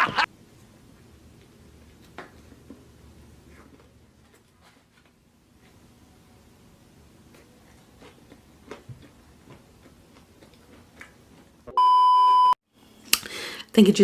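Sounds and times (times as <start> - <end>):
censor bleep: 11.8 - 12.6.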